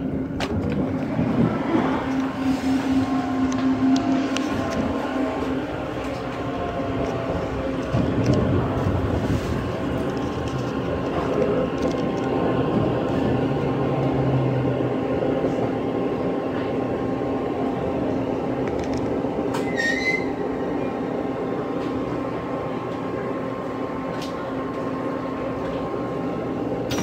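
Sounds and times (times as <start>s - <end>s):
train running rumble and hum: 0.0s - 27.0s
high squeal: 19.6s - 20.4s.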